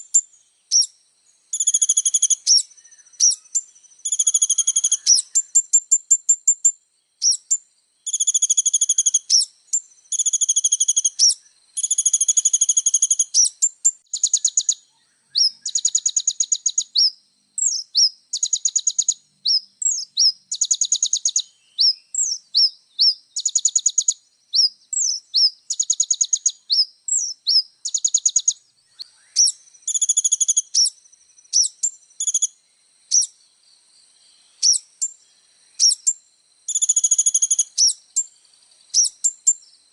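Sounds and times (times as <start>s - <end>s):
sunbird singing buzzy trills: 0.0s - 39.9s
sharp upslurred bird chips: 1.6s - 6.5s.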